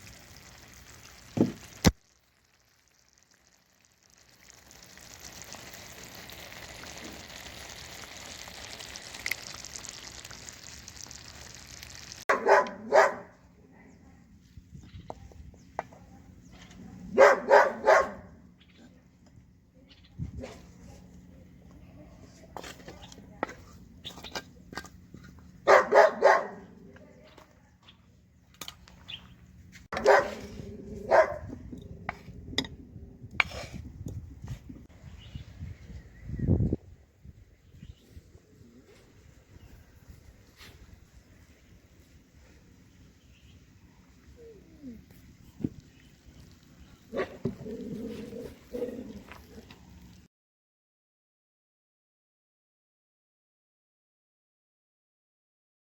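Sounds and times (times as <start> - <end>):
dog barking loudly: 12.3 - 13.3, 17.2 - 18.3, 25.6 - 26.7, 29.9 - 31.5.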